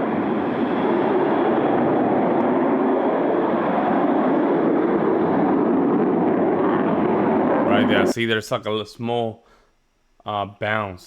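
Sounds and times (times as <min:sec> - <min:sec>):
jet engines rushing: 0:00.0 - 0:08.2.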